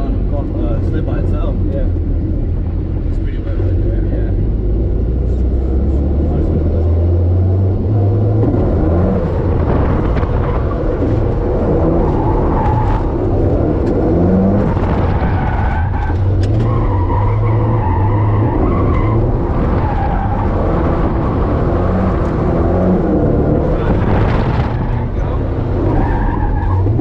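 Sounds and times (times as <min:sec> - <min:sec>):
car engine running hard: 0:00.0 - 0:27.0
tires skidding and squealing: 0:08.4 - 0:27.0.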